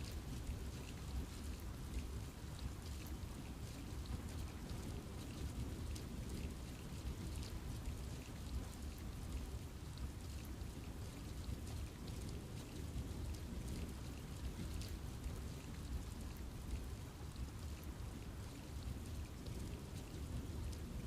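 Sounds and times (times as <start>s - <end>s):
steady rain rushing: 0.0s - 21.0s.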